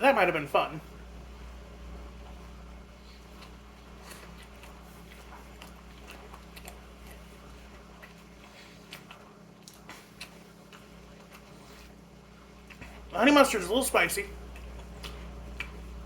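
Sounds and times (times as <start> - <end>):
steady low hum: 0.0 - 16.0
mouth chewing clicks and smacks: 3.4 - 11.6, 14.5 - 16.0.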